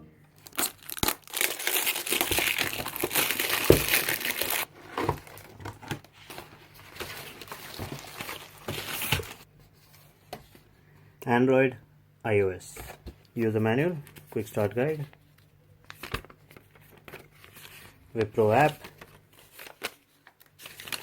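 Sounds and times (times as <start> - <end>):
packaging crinkling and tearing: 0.4 - 6.1, 6.8 - 9.4, 15.9 - 21.0.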